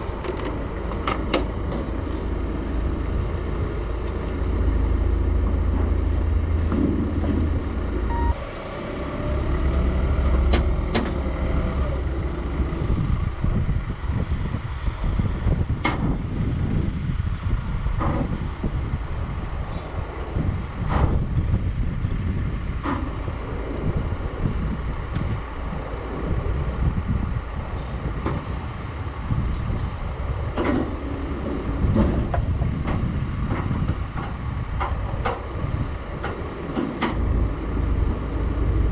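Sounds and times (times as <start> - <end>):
heavy vehicle engine rumbling: 0.0 - 38.9
sharp knocks and clanks: 6.6 - 7.7, 36.2 - 37.3.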